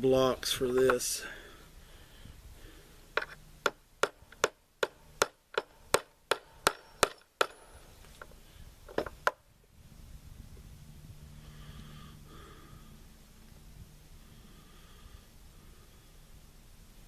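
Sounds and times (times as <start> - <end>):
hammer tapping on metal: 3.6 - 7.6.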